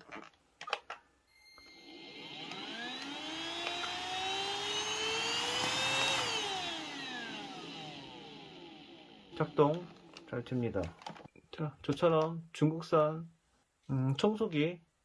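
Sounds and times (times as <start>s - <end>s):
vacuum motor whine: 1.3s - 10.4s
clicks: 2.4s - 4.4s.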